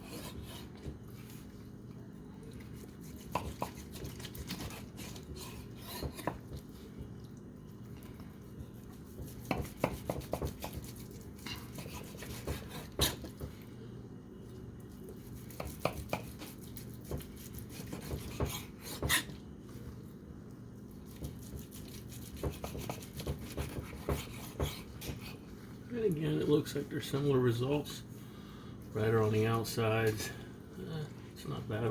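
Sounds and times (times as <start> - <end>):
steady low hum: 0.0 - 31.9
knife slicing steak: 2.7 - 6.7, 8.4 - 13.4, 15.1 - 19.4, 21.0 - 25.4.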